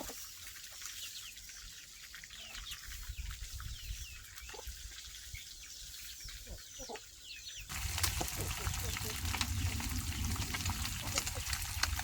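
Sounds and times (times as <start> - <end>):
birds chirping: 1.0 - 12.0
low rumble: 7.7 - 12.0.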